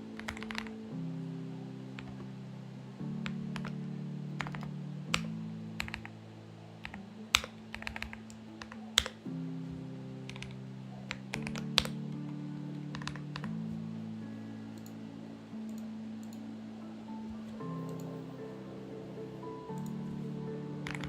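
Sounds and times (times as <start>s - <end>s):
soft background music: 0.0s - 21.0s
mechanical keyboard typing: 0.2s - 0.7s, 3.2s - 3.8s, 4.4s - 6.1s, 6.8s - 9.2s, 10.3s - 12.0s.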